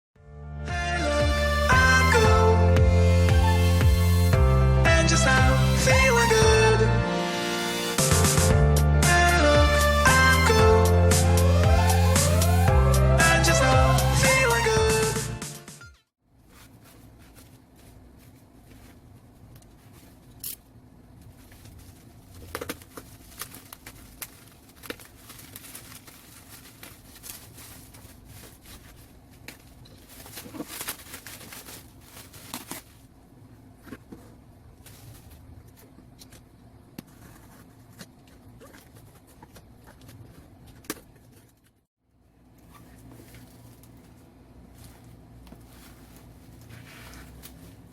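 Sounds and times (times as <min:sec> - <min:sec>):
packaging rustling and crinkling: 0:21.2 - 0:33.1, 0:42.6 - 0:47.9.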